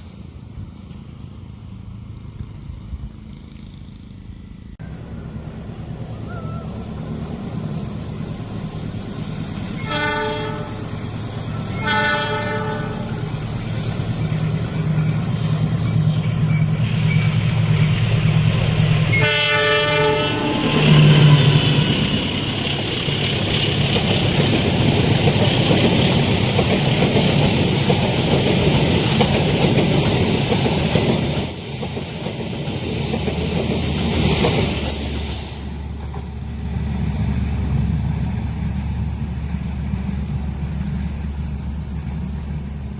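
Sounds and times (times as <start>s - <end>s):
diesel locomotive engine: 0.0s - 42.9s
train carriages rumbling on rails: 0.0s - 42.9s
locomotive horn blasts: 9.7s - 13.3s, 19.1s - 21.8s.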